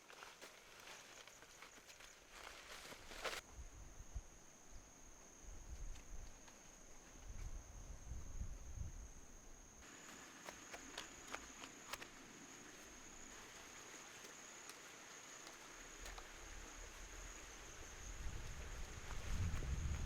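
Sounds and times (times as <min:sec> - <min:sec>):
crickets trilling: 0:00.1 - 0:20.0
low wind rumble: 0:07.2 - 0:09.6, 0:16.6 - 0:20.0.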